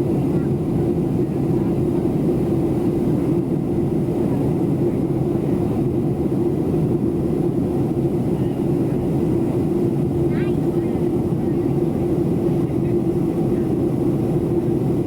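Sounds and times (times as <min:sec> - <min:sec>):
airliner cabin engine drone: 0:00.0 - 0:15.0.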